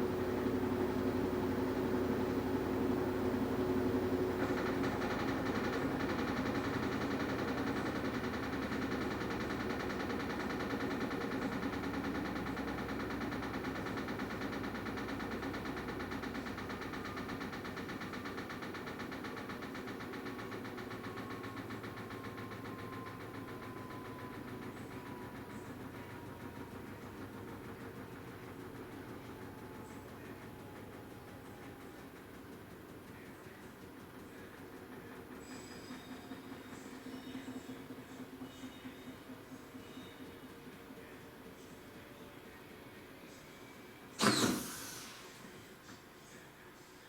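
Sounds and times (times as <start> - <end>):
washing machine hum: 0.0 - 35.5.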